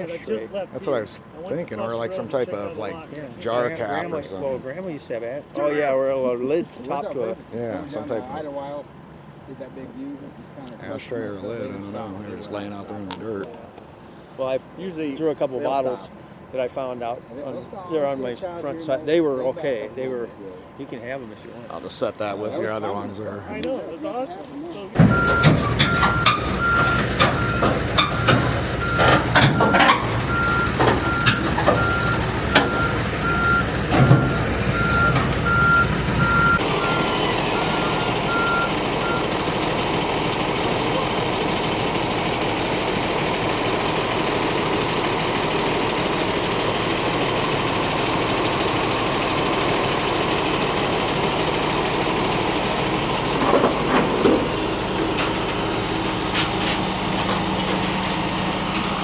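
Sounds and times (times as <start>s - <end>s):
knocks and clanks: 25.0s - 33.0s, 33.8s - 35.4s, 53.3s - 55.6s
reversing alarm beeping: 25.0s - 39.6s
machine engine running: 30.2s - 59.0s.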